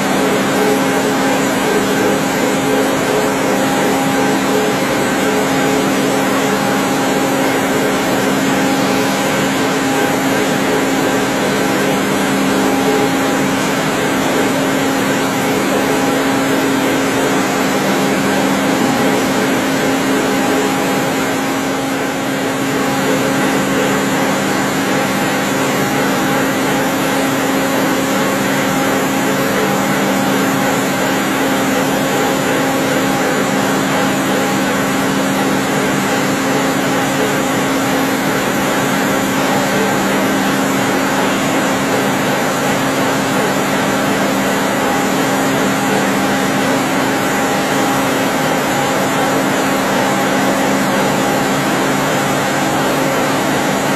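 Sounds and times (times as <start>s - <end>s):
steady low hum: 0.0s - 30.9s
lathe machine running: 0.0s - 53.9s.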